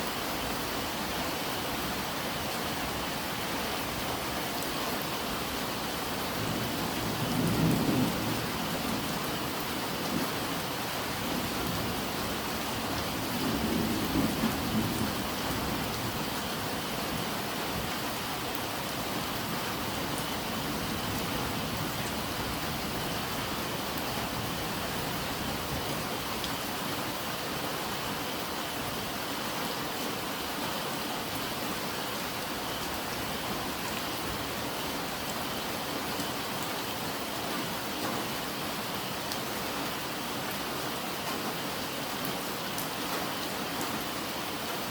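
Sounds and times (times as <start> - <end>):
steady rain falling: 0.0 - 44.9
low rumbles of thunder: 6.4 - 9.4.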